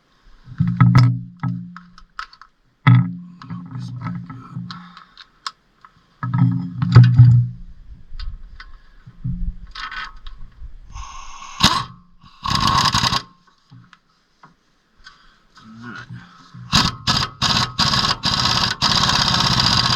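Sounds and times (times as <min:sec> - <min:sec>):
short bursts of noise: 0:10.9 - 0:19.9.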